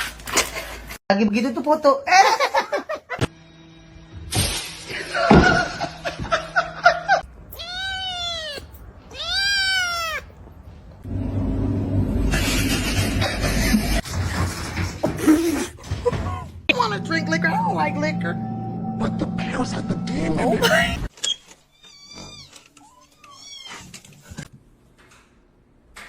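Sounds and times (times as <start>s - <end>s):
cat meowing: 7.3s - 11.0s.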